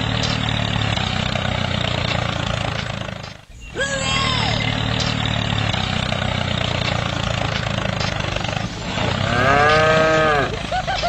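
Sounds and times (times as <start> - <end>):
tractor engine running: 0.0 - 11.0
cow mooing: 8.9 - 10.6.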